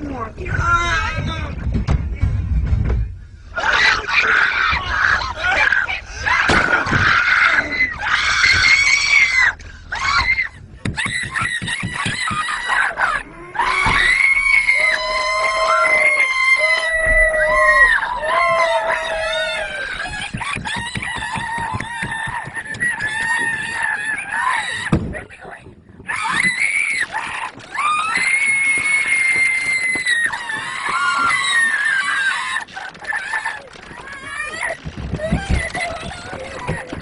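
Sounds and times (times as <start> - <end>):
people screaming in terror: 3.6 - 25.0, 26.0 - 37.0.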